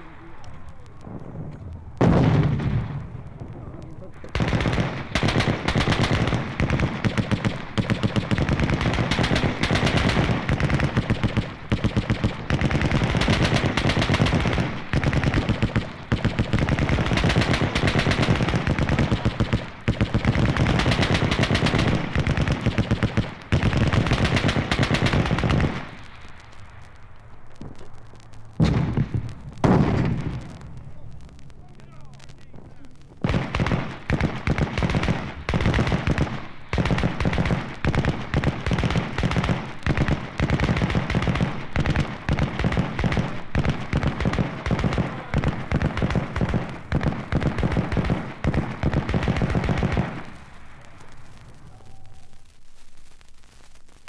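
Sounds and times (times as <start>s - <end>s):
machine-gun fire: 1.0s - 3.4s, 4.1s - 26.4s, 28.6s - 31.5s, 32.6s - 51.6s.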